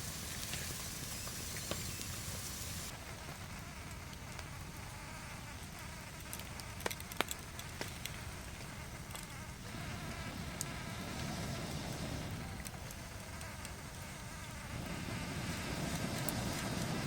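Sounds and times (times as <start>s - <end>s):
rain rumbling: 0.0s - 2.9s, 9.7s - 17.0s
insects buzzing: 0.0s - 17.0s.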